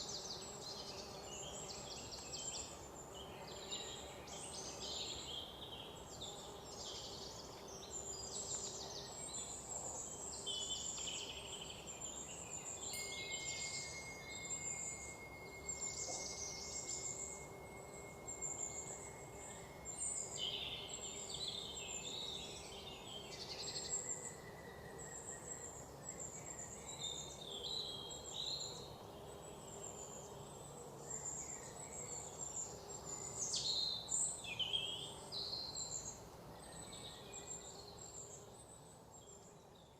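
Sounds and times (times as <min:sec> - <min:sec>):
birds chirping and trilling: 0:00.0 - 0:38.4
thin steady high tone: 0:12.2 - 0:26.8.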